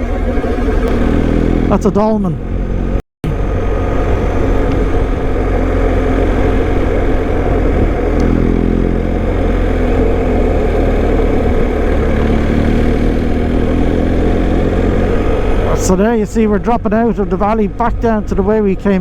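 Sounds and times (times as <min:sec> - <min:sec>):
motorcycle engine running: 0:00.0 - 0:19.0
wind and road noise: 0:00.0 - 0:19.0.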